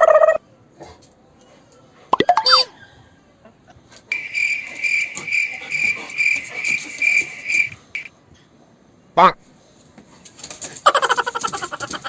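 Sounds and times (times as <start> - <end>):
cricket trilling: 4.1 - 8.1.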